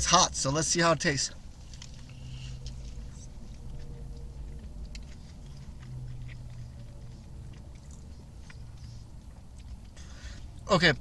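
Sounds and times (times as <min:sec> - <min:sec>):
low hum: 0:01.2 - 0:11.0
person chewing: 0:01.3 - 0:10.7
small clicks and ticks: 0:01.6 - 0:10.0.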